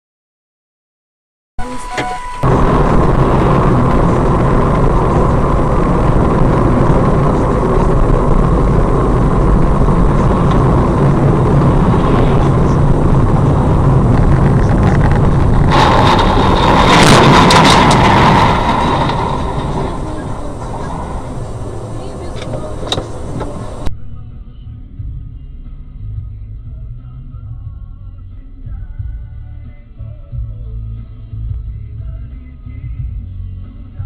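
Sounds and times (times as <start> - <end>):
car engine and road noise: 1.6 - 34.0
harsh clicks and rattles: 3.3 - 23.9.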